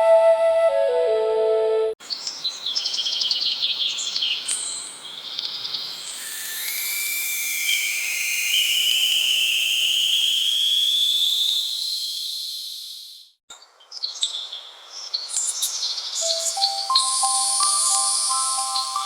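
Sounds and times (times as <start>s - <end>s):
high hissing insect chorus: 3.2s - 13.3s, 15.3s - 19.0s
chiming music: 16.2s - 19.0s.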